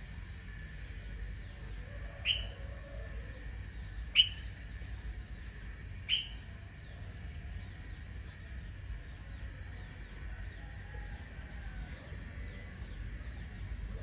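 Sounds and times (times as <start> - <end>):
bird calling sharply: 2.2 - 2.6, 4.2 - 4.5, 6.1 - 6.4.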